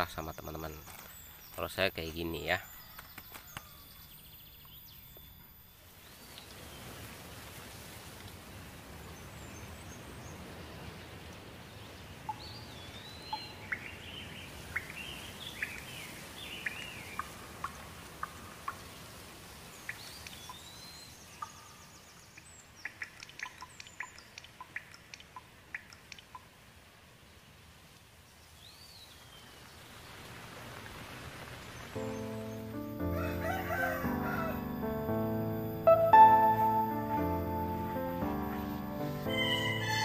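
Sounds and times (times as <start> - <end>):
small birds chirping: 0.0 - 7.0, 9.0 - 26.6, 31.4 - 34.0, 36.4 - 40.0.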